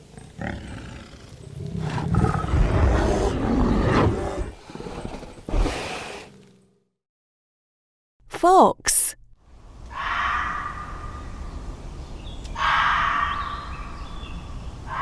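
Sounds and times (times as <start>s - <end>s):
bear growling: 0.0s - 6.5s.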